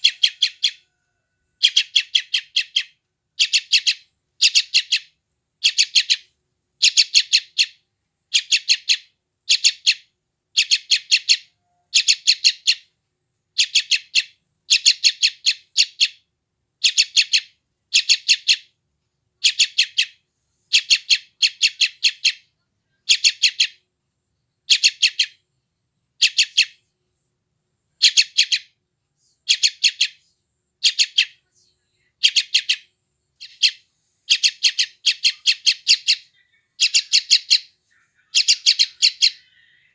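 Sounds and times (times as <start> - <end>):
bird chick begging calls: 0.0 - 1.0, 1.6 - 6.2, 6.8 - 10.0, 10.6 - 12.8, 13.6 - 16.2, 16.8 - 18.7, 19.4 - 23.8, 24.7 - 25.4, 26.2 - 26.8, 28.0 - 28.7, 29.4 - 30.2, 30.8 - 31.4, 32.2 - 39.9.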